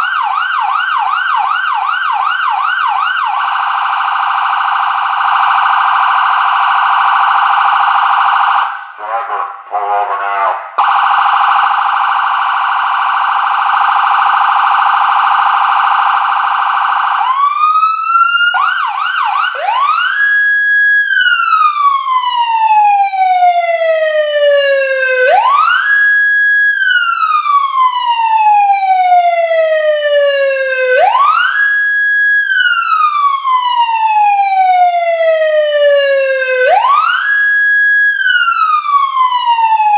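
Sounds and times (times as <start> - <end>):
police siren wailing: 0.0 - 39.9
police siren warbling: 0.0 - 39.9
siren choppy blips: 10.8 - 17.5.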